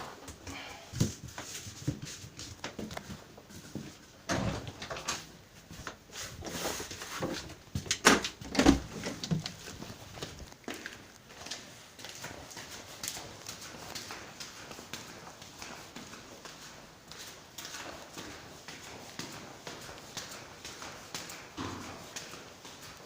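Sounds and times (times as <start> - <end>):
thuds and knocks from neighbours: 21.6 - 22.1.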